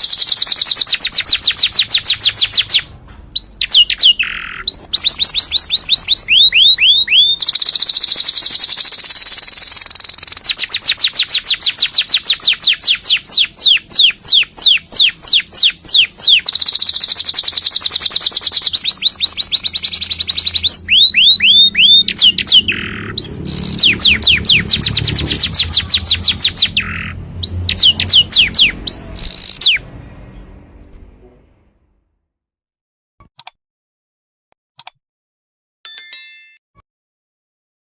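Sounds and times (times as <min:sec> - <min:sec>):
canary singing: 0:00.0 - 0:30.8.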